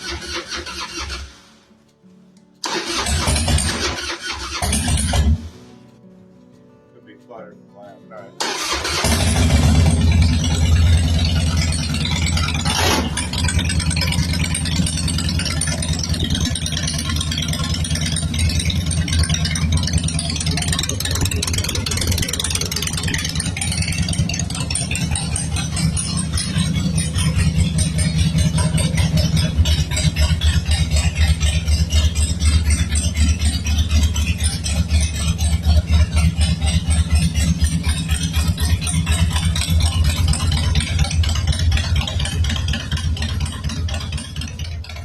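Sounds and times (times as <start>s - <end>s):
motorcycle engine idling: 2.6s - 5.6s, 8.4s - 45.0s
mechanical clatter: 8.5s - 45.0s.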